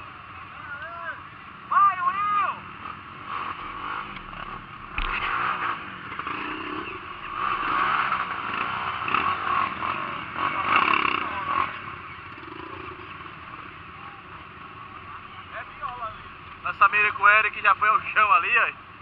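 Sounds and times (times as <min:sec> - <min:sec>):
motorcycle engine running: 0:02.6 - 0:16.7.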